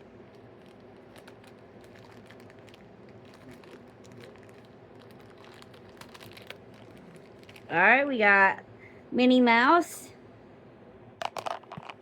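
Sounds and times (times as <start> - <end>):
low steady hum: 0.0 - 12.0
plastic bag crinkling: 0.2 - 7.7.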